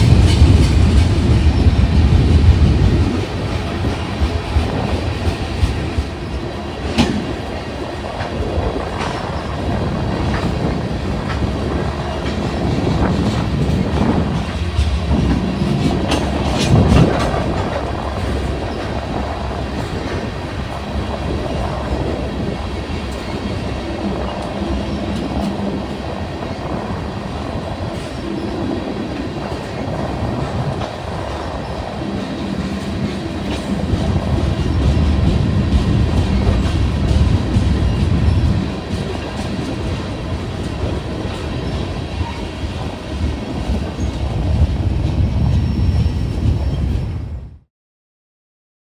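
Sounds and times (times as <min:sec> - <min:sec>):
train wheels clicking over rail joints: 0:00.0 - 0:46.8
freight train rumble: 0:00.0 - 0:47.6.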